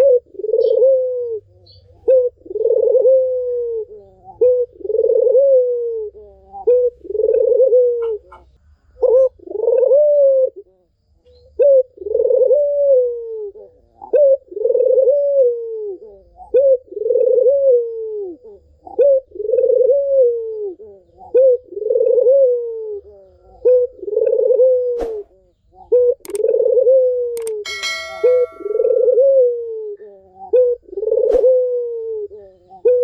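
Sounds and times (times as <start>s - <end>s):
dove cooing: 0.0s - 33.0s
faint clicks: 26.2s - 26.5s, 27.4s - 27.6s.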